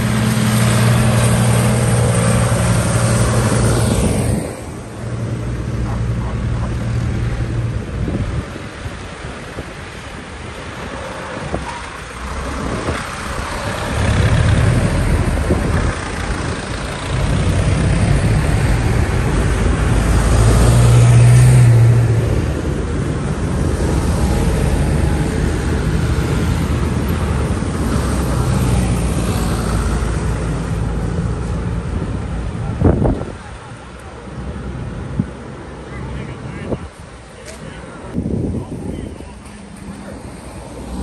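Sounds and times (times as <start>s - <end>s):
vintage tractor engines passing: 0.0s - 41.0s.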